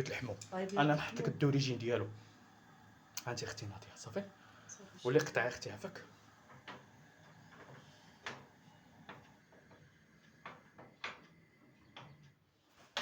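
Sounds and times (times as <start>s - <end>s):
light clicks and knocks: 5.2s - 13.0s.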